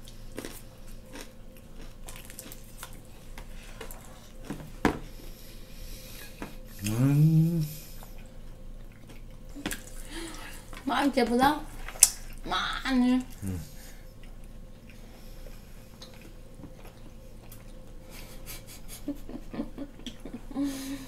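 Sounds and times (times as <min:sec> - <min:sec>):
people chewing food: 0:00.0 - 0:10.9, 0:11.7 - 0:12.5, 0:13.1 - 0:21.0
person humming: 0:06.8 - 0:07.9, 0:13.4 - 0:13.8.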